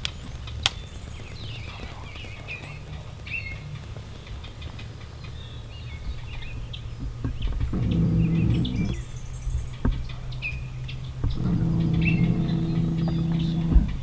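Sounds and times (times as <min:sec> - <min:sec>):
light ticks: 0:00.0 - 0:14.0
small birds chirping: 0:00.0 - 0:14.0
steady low rumble: 0:00.0 - 0:14.0.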